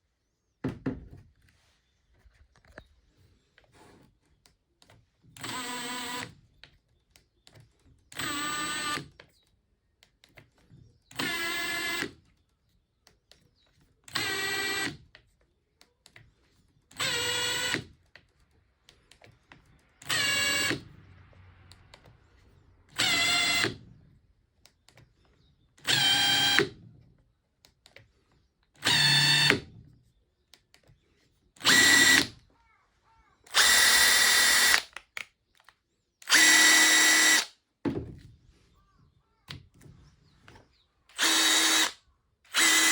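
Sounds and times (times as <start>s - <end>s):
impact driver motor whine: 20.0s - 20.9s, 25.8s - 26.8s, 28.8s - 29.7s, 31.6s - 32.3s, 33.5s - 34.8s, 36.2s - 37.5s, 41.1s - 42.9s.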